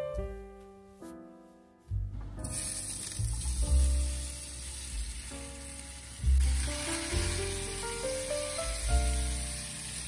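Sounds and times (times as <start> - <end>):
piano music: 0.0 - 10.0
potatoes sizzling in hot oil: 2.5 - 10.0.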